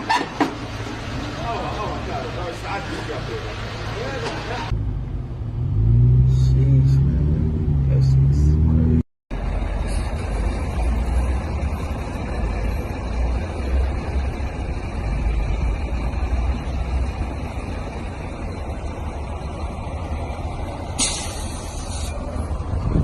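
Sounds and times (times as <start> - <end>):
road vehicle rumble: 0.0 - 23.0
burst of hiss: 21.0 - 22.2.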